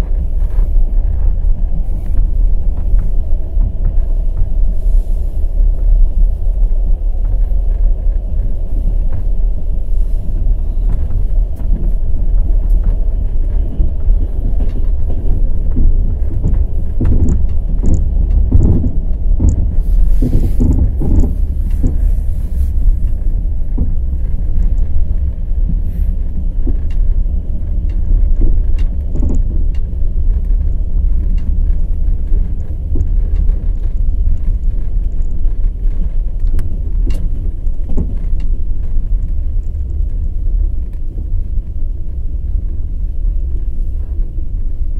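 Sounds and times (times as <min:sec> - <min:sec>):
low rumble: 0:00.0 - 0:44.9
train wheels clattering over rails: 0:06.6 - 0:40.4.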